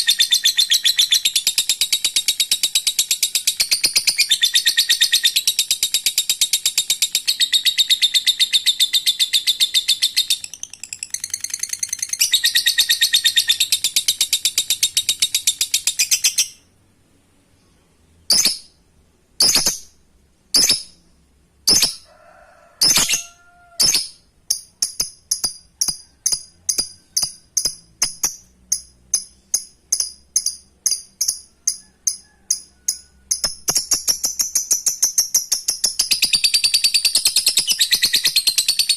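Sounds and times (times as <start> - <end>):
lovebird chattering song: 0.0 - 16.7, 18.3 - 18.8, 19.4 - 20.0, 20.6 - 21.0, 22.8 - 38.9
sharp bird calls: 0.0 - 16.7, 20.6 - 21.0, 22.8 - 24.3
quick repeated chirps: 0.0 - 16.8, 17.6 - 18.8, 19.4 - 22.0, 22.8 - 38.9.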